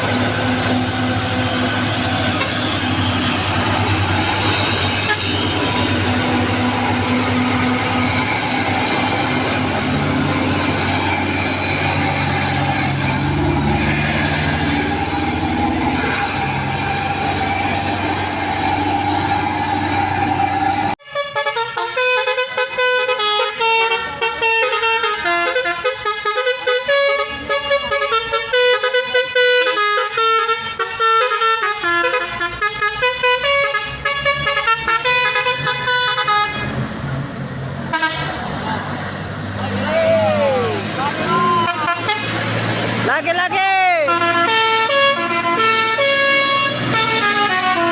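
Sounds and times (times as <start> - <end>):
heavy vehicle engine whining: 0.0 - 47.9
multi-note horn tune: 4.6 - 8.2, 37.9 - 38.4, 44.0 - 47.9.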